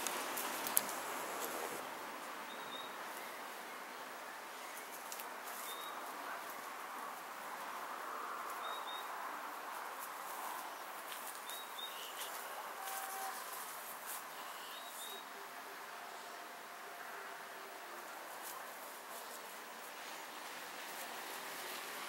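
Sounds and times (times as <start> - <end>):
steady outdoor hiss: 0.0 - 22.0
faint rustles: 9.4 - 15.2.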